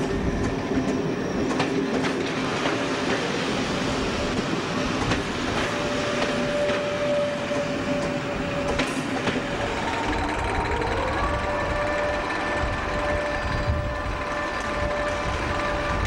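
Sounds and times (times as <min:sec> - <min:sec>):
train wheel squeal: 0:00.0 - 0:16.0
locomotive rumble and hum: 0:03.8 - 0:16.0
train wheels clicking over rail joints: 0:04.3 - 0:16.0.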